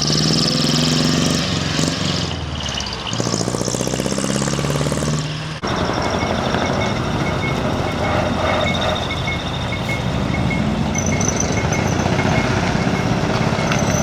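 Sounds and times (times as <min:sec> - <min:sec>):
truck engines pulling away: 0:00.0 - 0:14.0
short high beeps: 0:05.6 - 0:14.0.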